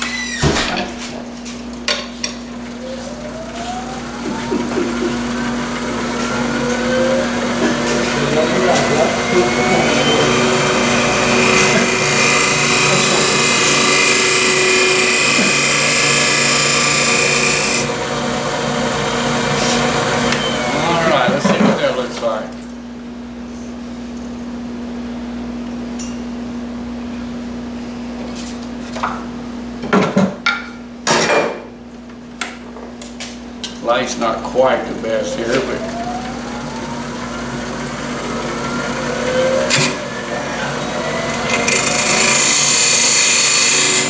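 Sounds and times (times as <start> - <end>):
lathe motor hum: 2.5 - 22.6, 33.8 - 44.0
tool cutting spinning wood: 2.5 - 22.6, 33.8 - 44.0.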